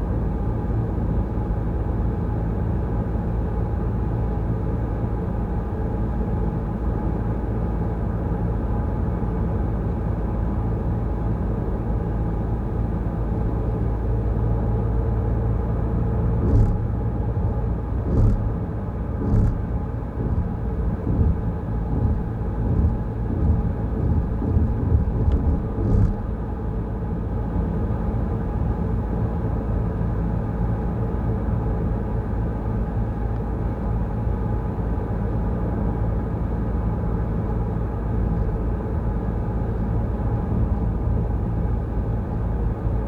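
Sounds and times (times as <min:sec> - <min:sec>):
car driving on wet road: 0:16.4 - 0:26.3
sudden thumps: 0:16.4 - 0:26.3.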